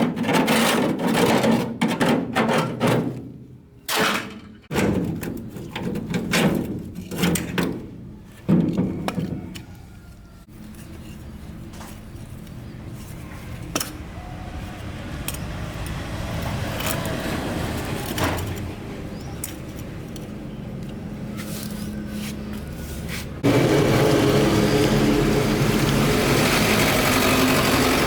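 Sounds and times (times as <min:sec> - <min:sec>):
loud machine running: 0:23.4 - 0:28.0.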